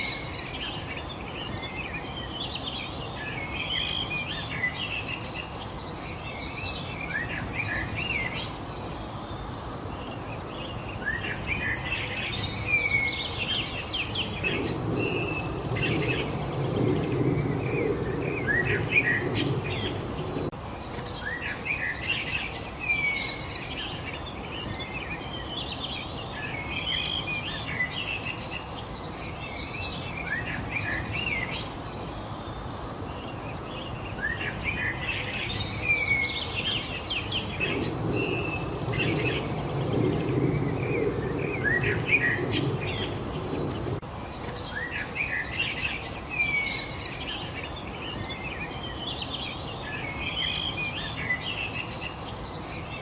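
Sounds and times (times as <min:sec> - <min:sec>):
low rumbling noise: 0:00.0 - 0:20.9, 0:34.4 - 0:44.3
small birds chirping: 0:00.0 - 0:53.0.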